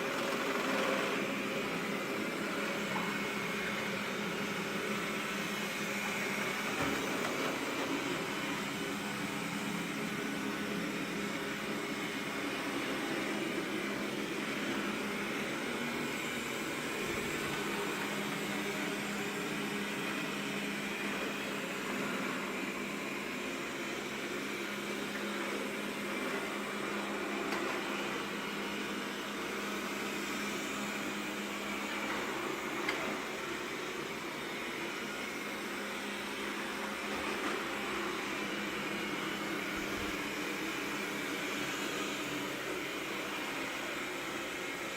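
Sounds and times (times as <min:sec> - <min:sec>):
robot vacuum cleaner running: 0:00.0 - 0:44.9.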